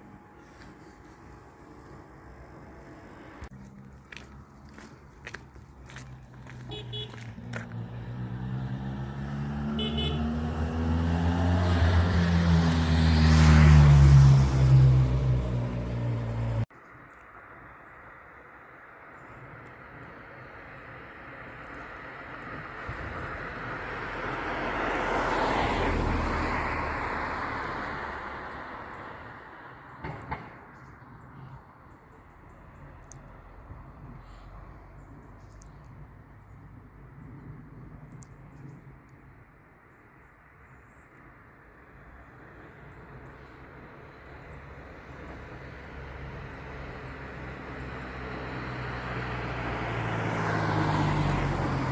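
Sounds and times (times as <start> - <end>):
road noise: 0.0 - 51.9
vehicle engine hum: 0.0 - 51.9
vehicle passing by: 0.4 - 16.7, 42.7 - 51.9.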